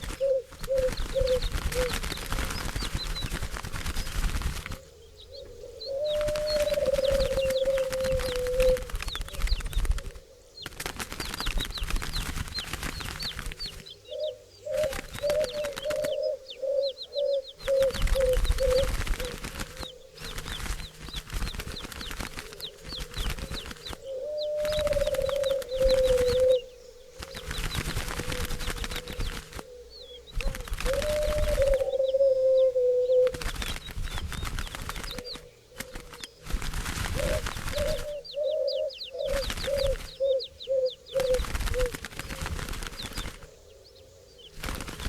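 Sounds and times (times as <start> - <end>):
wings flapping and rustling: 0.0 - 43.8, 44.4 - 45.0
doves cooing: 0.0 - 45.0
small birds chirping: 0.0 - 45.0.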